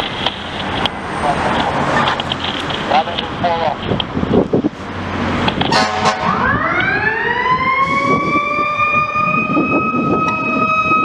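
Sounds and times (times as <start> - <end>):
fire truck siren winding up: 5.6 - 11.0
horn blast: 5.7 - 6.5.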